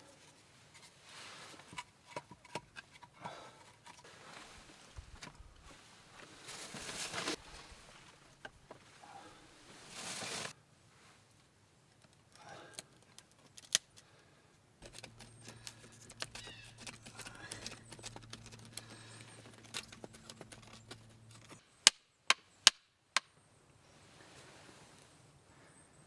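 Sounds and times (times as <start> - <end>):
wood crackling and snapping: 12.0 - 14.1, 14.8 - 22.8.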